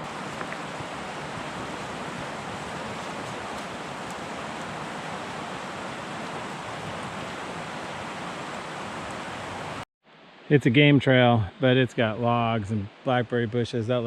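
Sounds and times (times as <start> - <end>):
river water rushing: 0.0 - 10.5.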